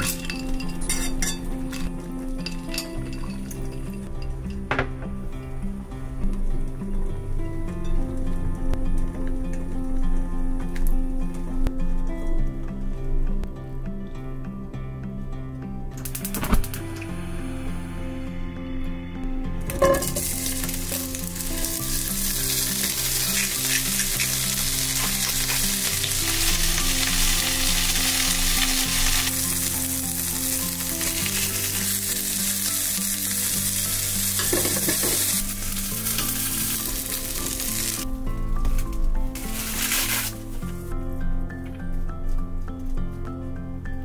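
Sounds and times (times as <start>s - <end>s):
vegetables sizzling in oil: 19.7s - 38.0s, 39.4s - 40.6s.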